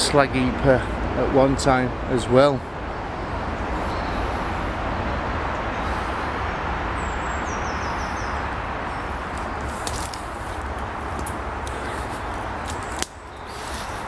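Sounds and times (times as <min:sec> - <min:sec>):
outdoor rushing noise: 0:00.0 - 0:14.0
light snaps: 0:12.6 - 0:13.2.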